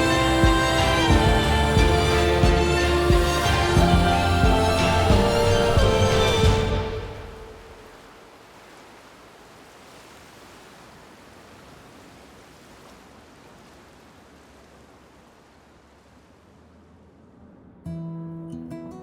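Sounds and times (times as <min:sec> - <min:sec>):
faint steady rushing noise: 0:00.0 - 0:18.7.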